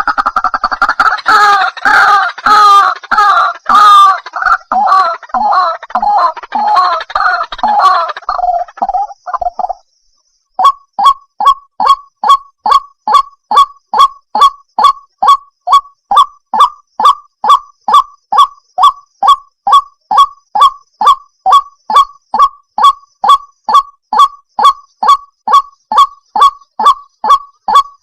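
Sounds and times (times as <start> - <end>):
waterhen honking calls: 0.0 - 9.0.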